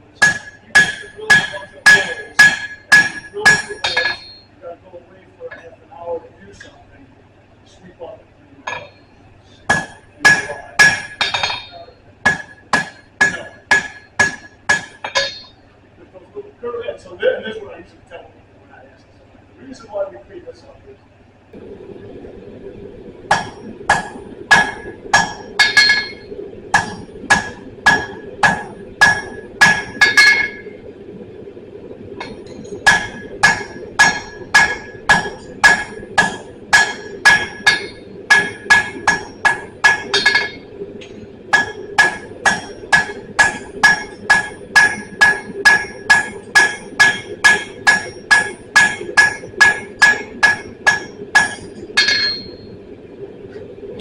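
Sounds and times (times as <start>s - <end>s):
steady hum: 0.0s - 54.0s
hammer striking steel on anvil: 0.2s - 4.5s, 8.7s - 9.0s, 9.7s - 15.6s, 23.3s - 30.7s, 32.2s - 52.7s.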